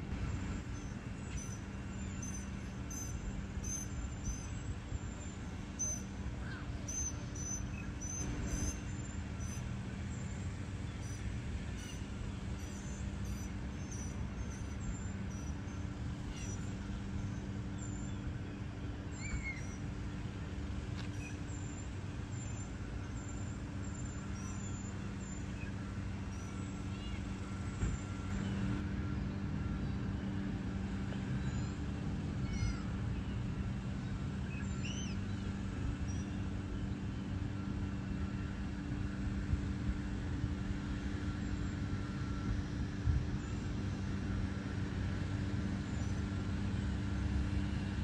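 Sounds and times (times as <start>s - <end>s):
steady low hum: 0.0s - 48.0s
bird chirps and whistles: 6.9s - 8.8s.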